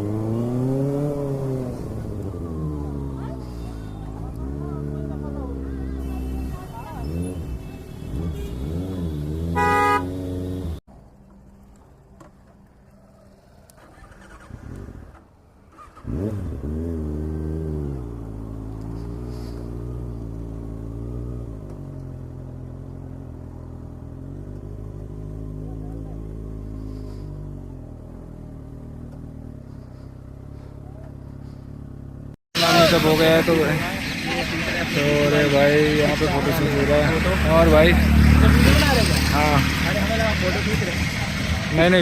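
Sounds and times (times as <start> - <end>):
motorcycle engine revving: 0.0 - 10.9, 13.2 - 42.0
short horn beep: 6.0 - 10.2.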